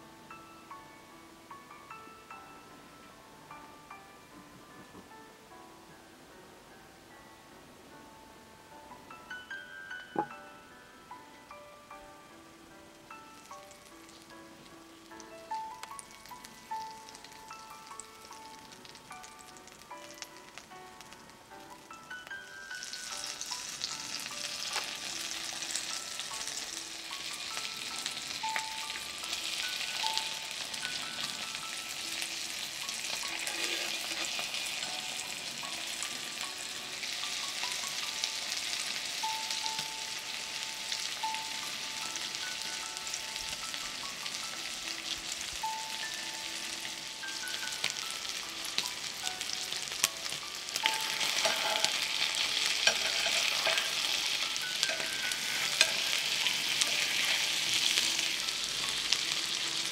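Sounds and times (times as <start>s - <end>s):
butter sizzling in a skillet: 13.1s - 59.9s.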